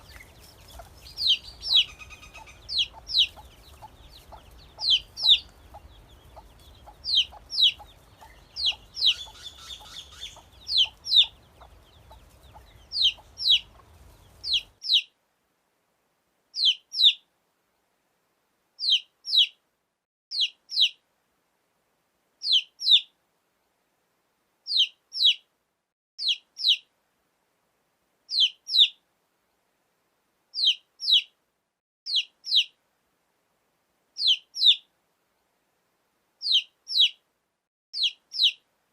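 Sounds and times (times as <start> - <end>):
baby chicks peeping: 0.0 - 15.1, 16.6 - 17.2, 18.8 - 19.6, 20.3 - 21.0, 22.4 - 23.0, 24.7 - 25.4, 26.2 - 26.9, 28.3 - 29.0, 30.6 - 31.3, 32.1 - 32.8, 34.2 - 34.8, 36.4 - 37.2, 38.0 - 38.6.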